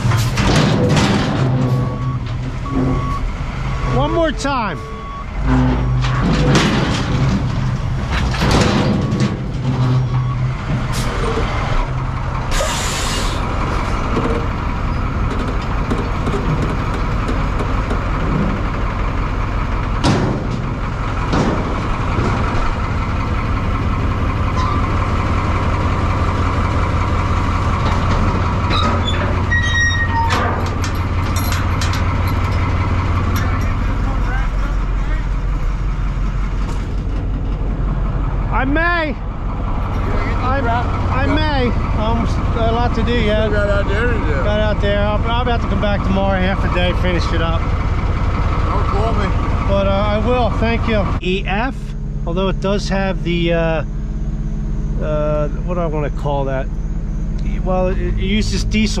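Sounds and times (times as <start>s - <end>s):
knocks and clanks: 0.0s - 3.3s, 5.0s - 12.6s, 13.5s - 18.8s, 19.8s - 23.6s, 25.8s - 38.3s
diesel truck engine running: 0.0s - 59.0s
air hiss: 12.6s - 13.4s.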